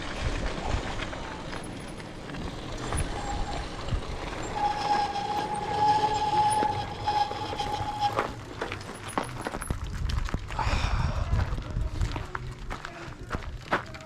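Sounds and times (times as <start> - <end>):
rumbling ride noise: 0.0 - 14.0
bicycle brake squealing: 2.8 - 9.3.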